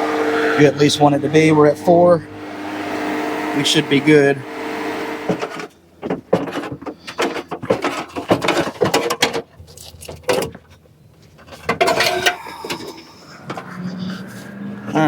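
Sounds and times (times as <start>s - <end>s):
sheet metal clatter and knocks: 5.4s - 13.0s.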